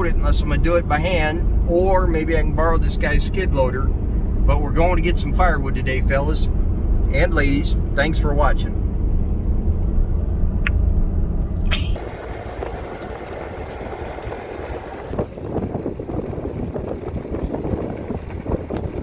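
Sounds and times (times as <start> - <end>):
road rumble inside vehicle: 0.0 - 19.0
rough crackling noise: 11.5 - 19.0.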